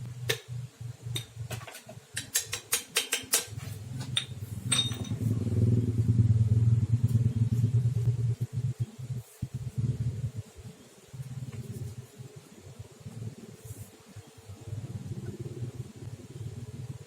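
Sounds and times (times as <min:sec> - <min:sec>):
metallic clicks and knocks: 0:01.1 - 0:05.2
engine hum: 0:03.8 - 0:12.1.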